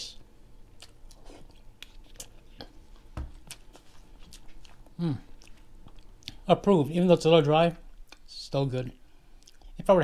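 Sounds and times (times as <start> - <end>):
person chewing food: 0.7 - 6.4, 9.3 - 9.8.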